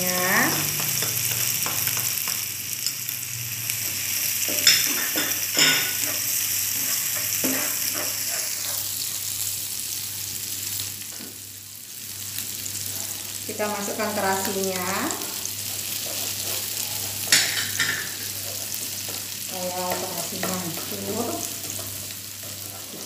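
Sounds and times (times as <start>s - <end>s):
vegetables sizzling in hot oil: 0.0s - 23.0s
spatula scraping a pan: 4.0s - 9.3s, 15.6s - 23.0s.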